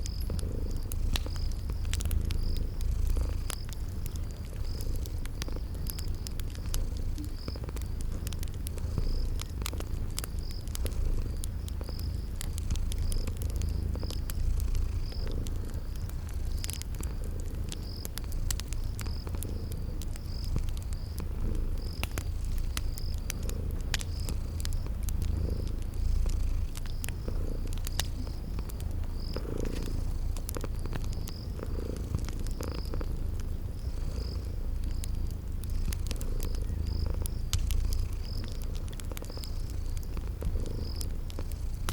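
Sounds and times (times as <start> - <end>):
cat purring: 0.0 - 41.9
cricket chirping: 0.0 - 41.9
fire crackling: 0.0 - 41.9.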